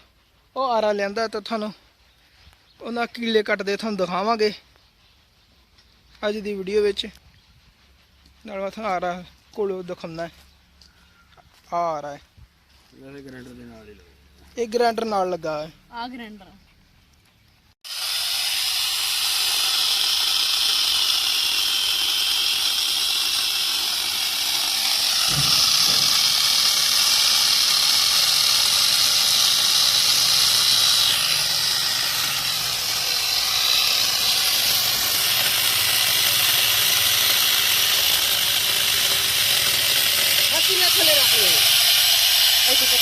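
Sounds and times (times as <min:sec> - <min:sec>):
angle grinder running: 0:17.8 - 0:43.0.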